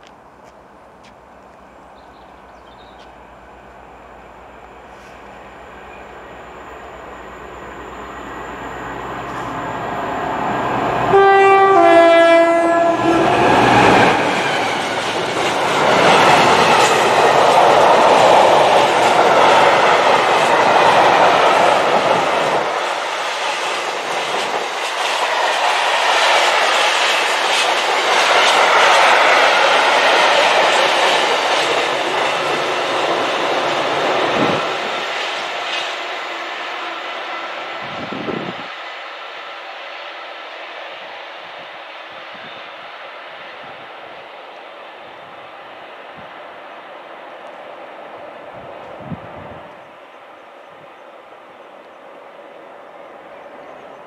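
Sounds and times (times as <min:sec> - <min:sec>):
train rumbling and clattering: 0:00.0 - 0:54.0
two-tone train horn: 0:10.8 - 0:14.2.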